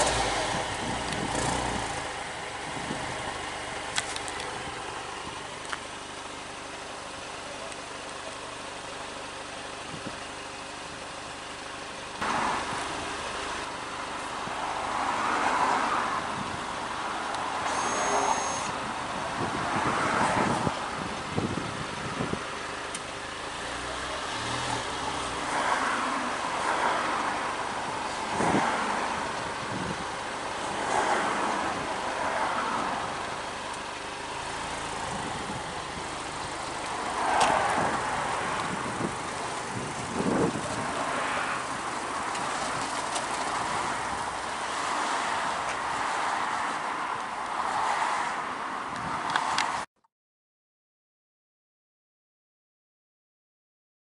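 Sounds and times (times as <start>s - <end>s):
rushing exhaust sound: 0.0s - 6.8s, 9.2s - 47.0s
car engine idling: 0.0s - 14.9s, 20.7s - 25.6s, 26.2s - 46.0s.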